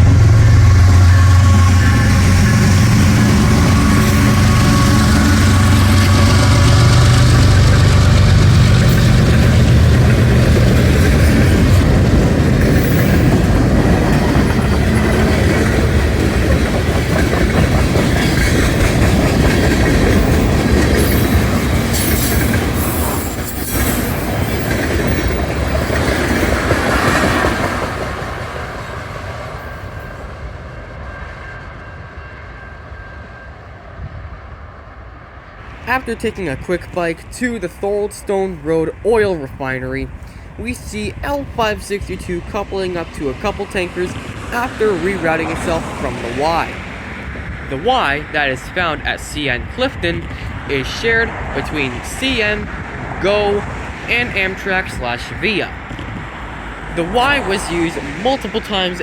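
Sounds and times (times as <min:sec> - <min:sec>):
train wheels clickety-clack: 0:00.0 - 0:30.2, 0:41.3 - 0:49.0
locomotive diesel engine: 0:00.0 - 0:30.4, 0:35.6 - 0:59.0.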